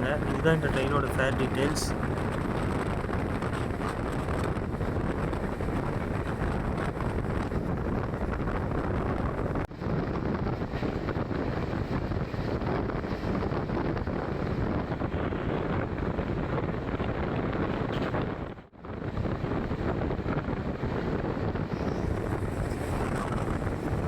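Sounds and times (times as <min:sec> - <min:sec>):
passenger train rumbling: 0:00.0 - 0:18.6, 0:19.4 - 0:24.0
wind buffeting microphone: 0:00.0 - 0:24.0.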